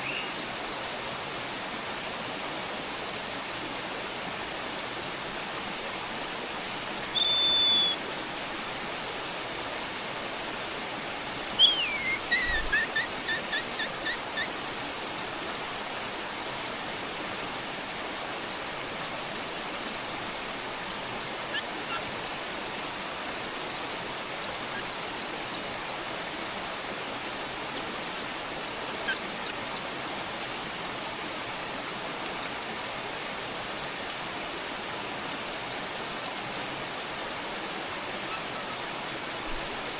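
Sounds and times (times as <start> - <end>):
parent bird calling: 7.1 - 8.0, 11.6 - 23.9
nestlings cheeping: 11.6 - 18.1.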